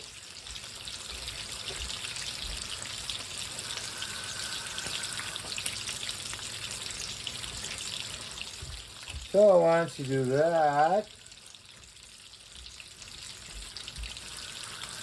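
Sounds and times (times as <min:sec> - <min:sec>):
water pouring into a pot: 0:00.0 - 0:15.0.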